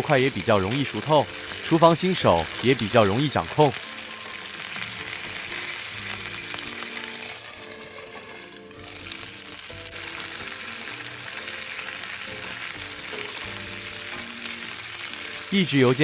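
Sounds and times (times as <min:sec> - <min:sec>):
meat sizzling in oil: 0:00.0 - 0:16.0.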